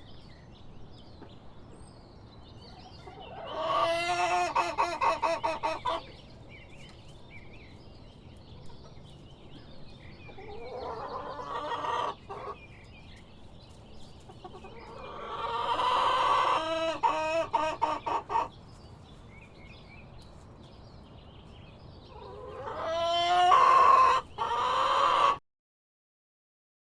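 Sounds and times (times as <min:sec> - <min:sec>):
faint chicken calls: 0:02.6 - 0:19.6, 0:21.5 - 0:25.4.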